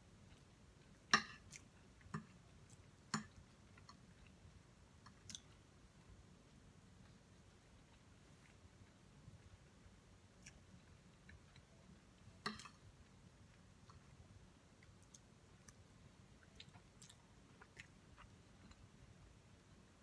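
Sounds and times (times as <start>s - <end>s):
chewing and mouth clicks: 5.0s - 5.6s, 14.8s - 15.8s, 16.4s - 18.9s.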